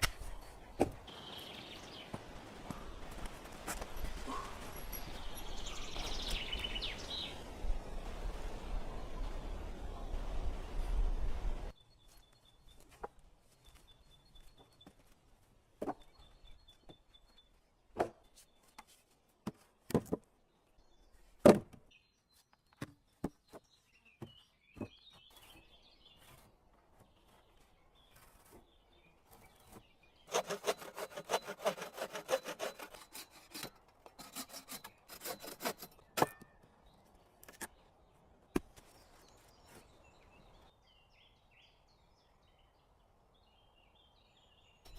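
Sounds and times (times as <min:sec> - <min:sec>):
rubbing or sawing strokes: 0:30.3 - 0:36.0.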